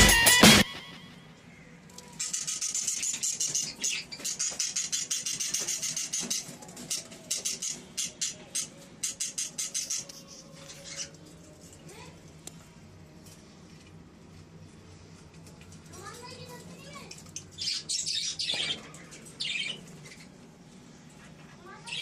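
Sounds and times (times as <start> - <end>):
guitar music: 0.0 - 1.1
parrots chattering: 2.1 - 11.3, 17.1 - 20.4, 21.7 - 22.0.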